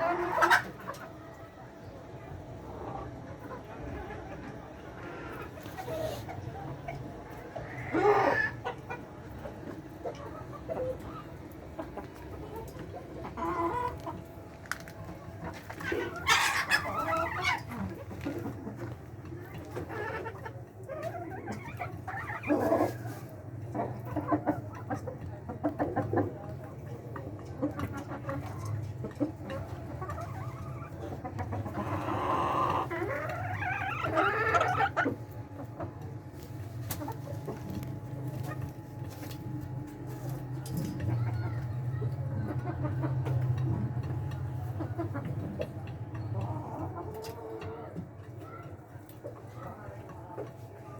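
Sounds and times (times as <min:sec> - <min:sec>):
hens clucking: 0:00.0 - 0:50.9.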